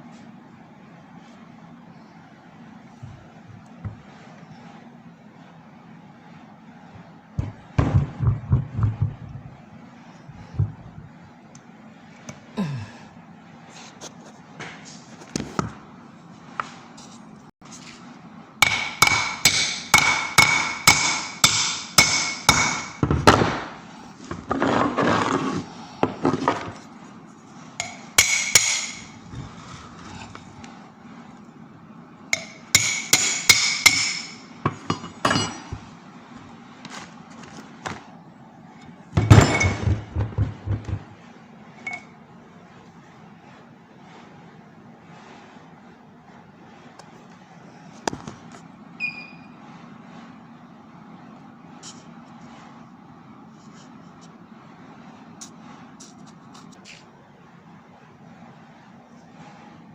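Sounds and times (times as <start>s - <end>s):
hammer striking metal: 18.6s - 23.6s, 27.8s - 29.2s, 32.4s - 35.8s.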